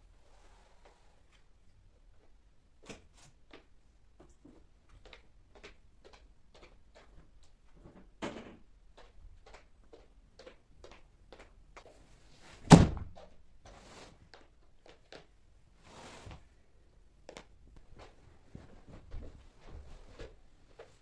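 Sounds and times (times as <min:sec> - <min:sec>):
loud thud: 0:12.7 - 0:13.2.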